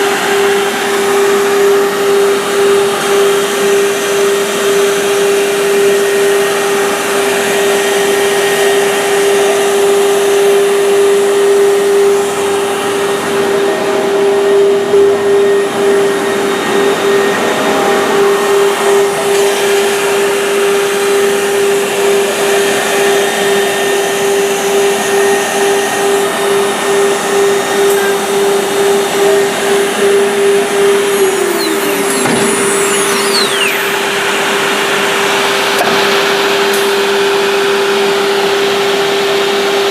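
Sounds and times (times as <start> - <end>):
high-speed motor whine: 0.0 - 39.9
tone gliding down in pitch: 27.3 - 34.7.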